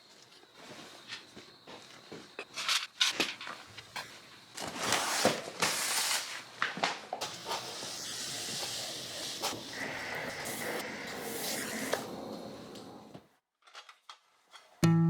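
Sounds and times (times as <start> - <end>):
objects scraping: 4.6 - 6.5.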